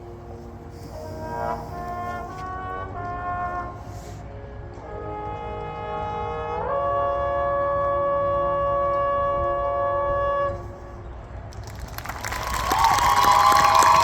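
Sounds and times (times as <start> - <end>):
marching band holding a chord: 0.0 - 10.7.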